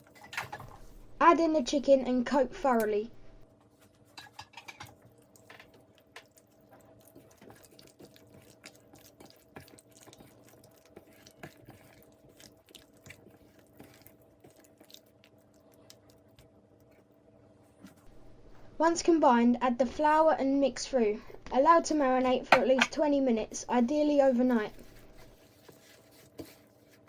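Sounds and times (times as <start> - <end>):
wet squelches of marinade: 4.9 - 17.1.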